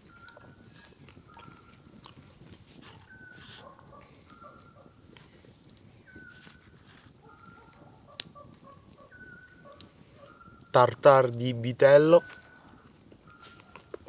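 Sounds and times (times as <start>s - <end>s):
soft crunching and mouth clicks: 0.0s - 11.5s, 12.2s - 14.0s.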